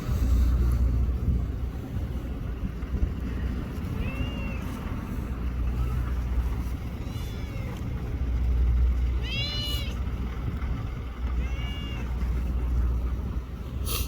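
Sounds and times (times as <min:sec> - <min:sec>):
low steady rumble: 0:00.0 - 0:14.0
cat meowing: 0:07.0 - 0:07.9, 0:09.1 - 0:10.0, 0:11.3 - 0:12.4.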